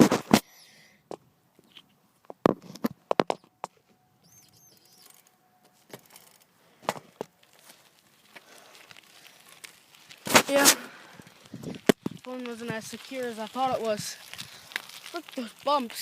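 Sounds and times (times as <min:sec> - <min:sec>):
phone rattling in bike mount: 0:04.6 - 0:06.5.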